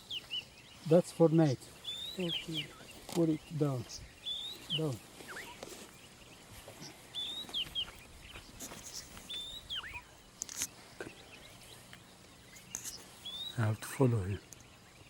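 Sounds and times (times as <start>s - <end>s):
small bird whistling calls: 1.8s - 3.1s, 3.9s - 5.9s, 7.1s - 10.2s, 12.4s - 13.6s.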